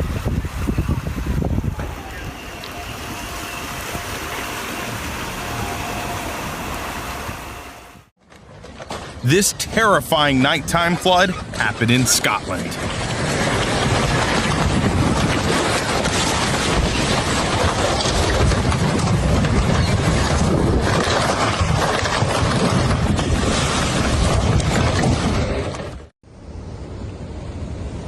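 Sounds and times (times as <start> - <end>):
floodwater rushing: 0.0 - 7.8, 9.2 - 18.5
wind noise on microphone: 0.0 - 8.1, 12.8 - 26.1.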